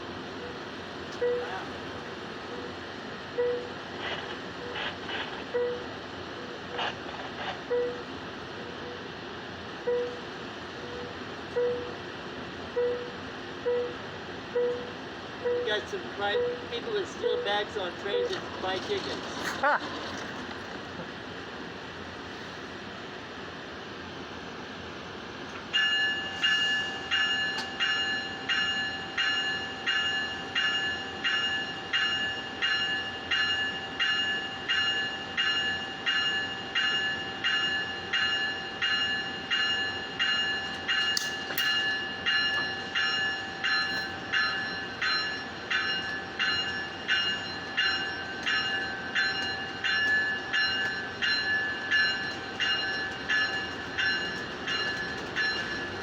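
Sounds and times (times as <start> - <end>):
train warning bell ringing: 0.0 - 3.8, 9.8 - 12.0, 12.7 - 19.2, 25.7 - 56.0.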